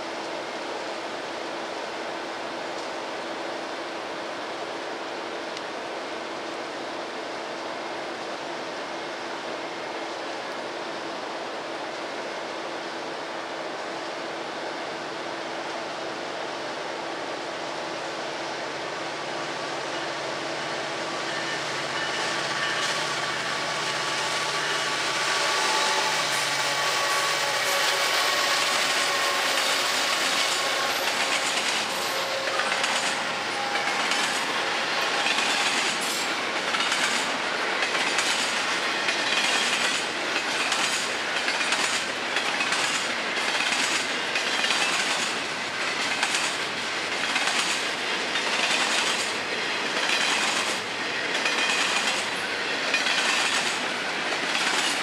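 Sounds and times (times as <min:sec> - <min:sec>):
diesel locomotive engine drone: 0:00.0 - 0:55.0
train wheels clickety-clack: 0:21.2 - 0:55.0.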